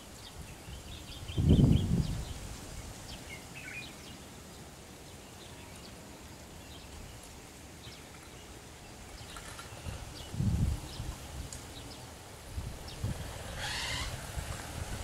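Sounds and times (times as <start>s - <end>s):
faint steady hiss: 0.0s - 15.0s
small bird chirps: 12.9s - 14.2s.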